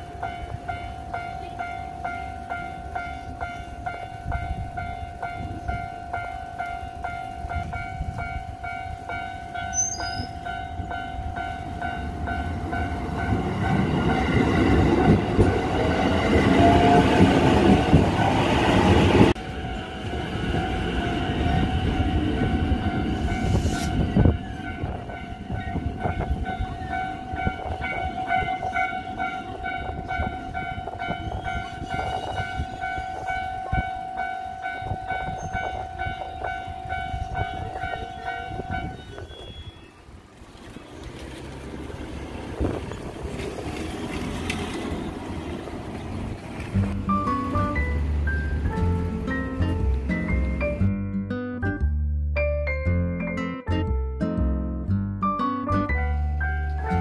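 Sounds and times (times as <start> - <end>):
level crossing warning bell ringing: 0.0 - 18.0, 19.3 - 39.9
electric train rumbling past: 0.0 - 51.0, 55.9 - 57.0.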